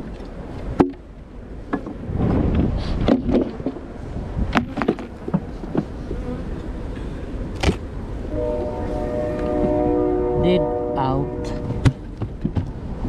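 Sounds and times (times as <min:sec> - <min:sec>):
honey bees buzzing: 0:04.6 - 0:06.9.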